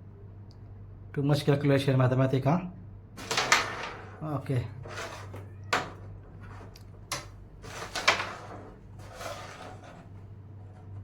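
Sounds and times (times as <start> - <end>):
wooden pieces sliding on board: 3.2 - 4.1, 4.8 - 5.4, 6.4 - 11.0.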